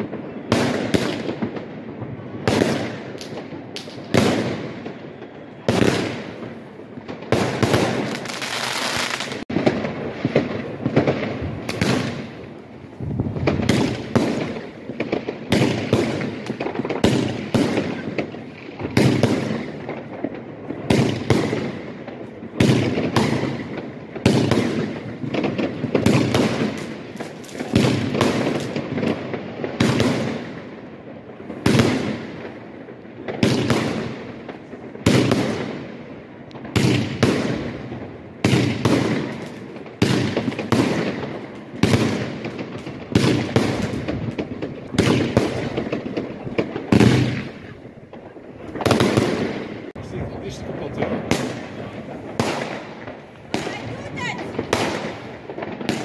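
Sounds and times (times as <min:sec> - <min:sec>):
firework cake bangs: 0:13.0 - 0:30.6, 0:36.6 - 0:56.0.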